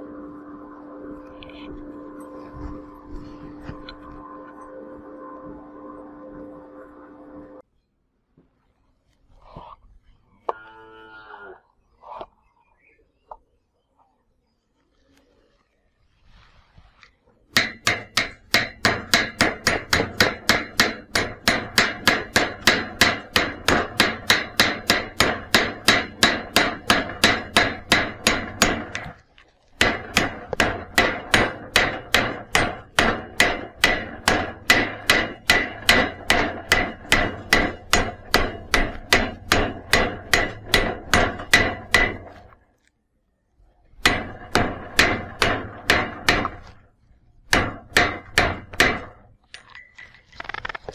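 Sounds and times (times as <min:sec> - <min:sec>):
hammer striking steel: 0:17.5 - 0:29.2, 0:29.8 - 0:42.4, 0:44.0 - 0:46.7, 0:47.5 - 0:49.2.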